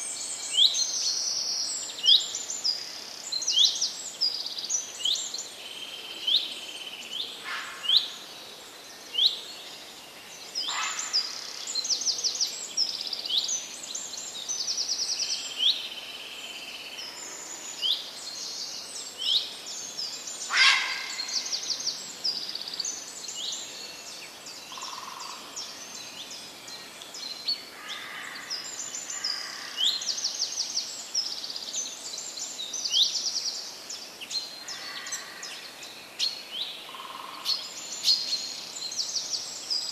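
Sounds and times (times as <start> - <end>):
outdoor background hiss: 0.0 - 39.9
birds chirping and trilling: 10.4 - 16.0, 16.7 - 39.9.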